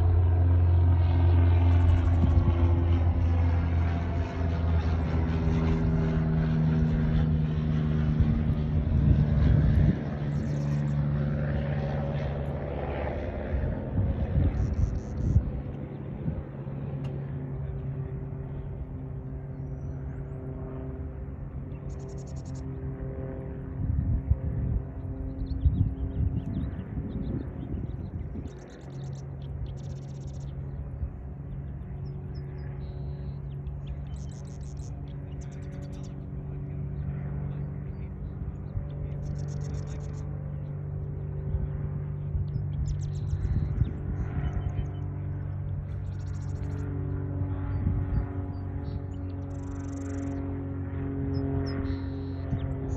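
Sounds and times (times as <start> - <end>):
steady low hum: 0.0 - 52.9
small bird chirping: 32.8 - 36.2, 39.2 - 40.2, 42.5 - 45.1, 46.0 - 46.8, 48.8 - 50.4, 51.6 - 52.9.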